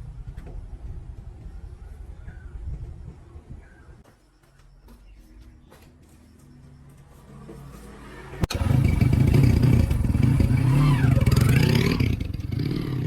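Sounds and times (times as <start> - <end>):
motorbike engine revving: 7.1 - 13.0.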